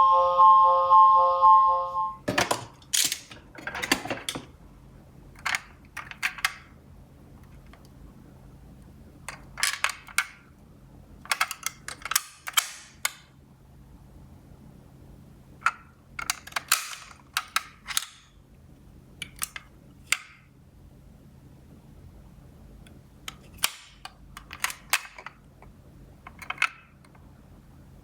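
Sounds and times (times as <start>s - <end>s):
toy cars clattering: 2.3s - 4.5s, 5.4s - 6.7s, 9.3s - 10.4s, 11.3s - 13.2s, 15.6s - 18.2s, 23.3s - 25.4s, 26.3s - 26.9s.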